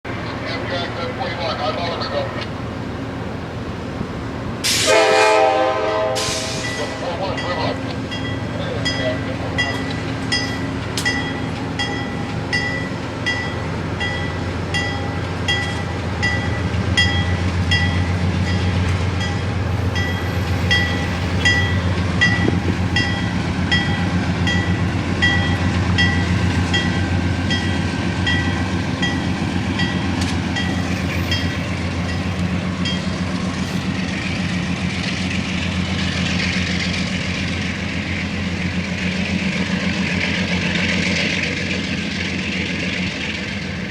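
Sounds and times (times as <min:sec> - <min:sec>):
diesel train engine drone: 0:00.0 - 0:43.9
train bell ringing: 0:06.5 - 0:34.2.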